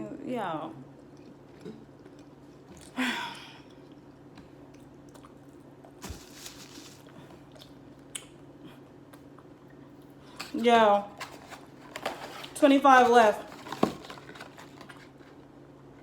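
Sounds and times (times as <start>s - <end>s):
person chewing food: 3.6s - 10.1s.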